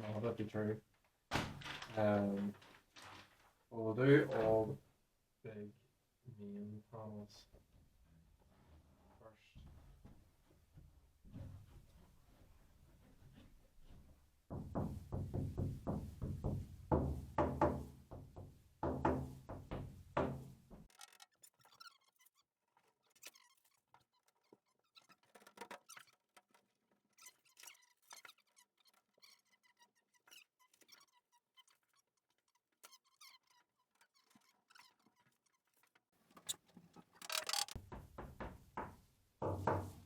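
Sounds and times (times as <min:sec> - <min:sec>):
foil mats crinkling and tapping: 0:01.4 - 0:03.6
rubbing and scraping: 0:20.8 - 0:37.8.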